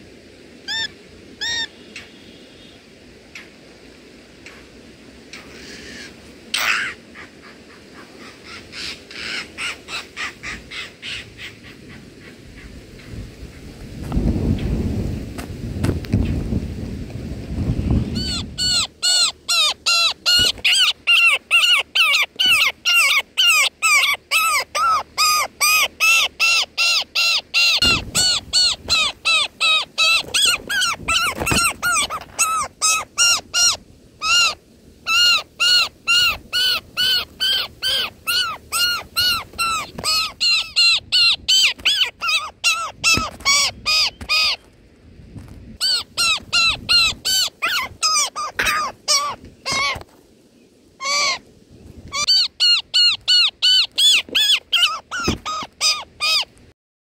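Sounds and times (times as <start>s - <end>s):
bird nestling begging calls: 18.2s - 44.6s, 45.8s - 50.0s, 52.1s - 56.5s.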